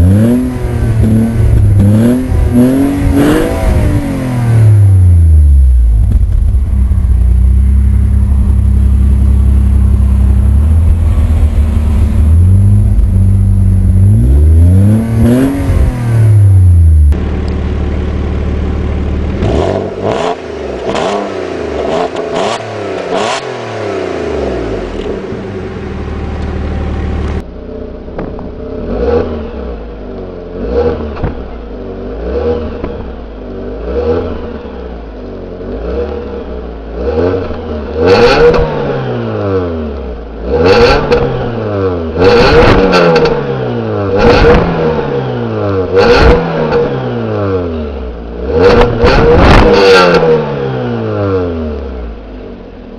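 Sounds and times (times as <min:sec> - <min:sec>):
car engines revving: 0:00.0 - 0:52.9
exhaust pops: 0:05.8 - 0:14.2, 0:31.1 - 0:31.7, 0:48.6 - 0:50.2.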